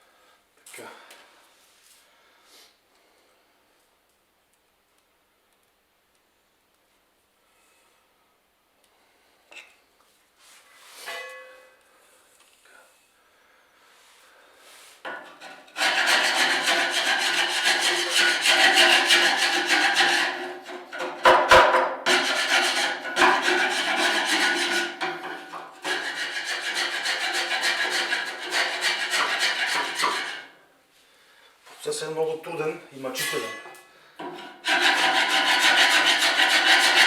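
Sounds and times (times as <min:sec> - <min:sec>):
metal scraper rasping soot off metal: 0:15.2 - 0:30.5, 0:34.3 - 0:37.0.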